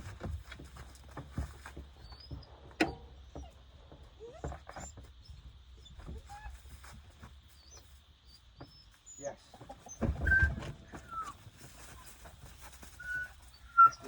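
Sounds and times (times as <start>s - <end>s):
puppies whining: 2.0s - 6.6s, 7.6s - 12.2s, 12.9s - 14.0s.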